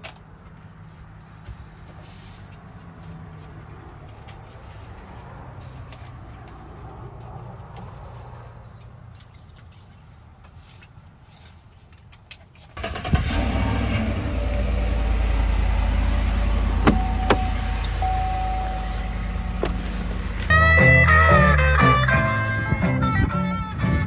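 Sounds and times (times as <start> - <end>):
vehicle engine running: 12.8 - 23.7
short steady tone: 16.8 - 20.6.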